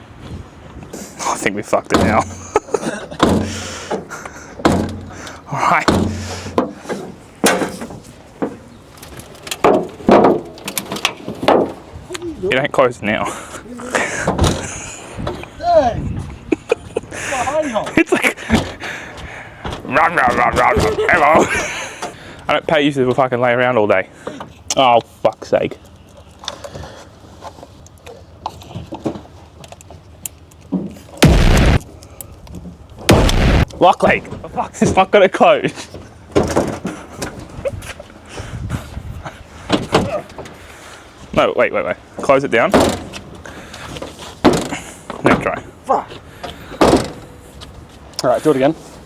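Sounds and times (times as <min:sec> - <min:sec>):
car door knocks and rattles: 0:01.9 - 0:02.4, 0:03.2 - 0:03.7, 0:04.6 - 0:05.2, 0:05.9 - 0:06.7, 0:14.3 - 0:14.6, 0:18.5 - 0:18.8, 0:46.8 - 0:47.2
car door slamming: 0:02.0 - 0:02.4, 0:03.2 - 0:03.8, 0:04.6 - 0:05.2, 0:05.9 - 0:06.6, 0:19.6 - 0:21.2, 0:33.1 - 0:33.7, 0:46.8 - 0:47.3.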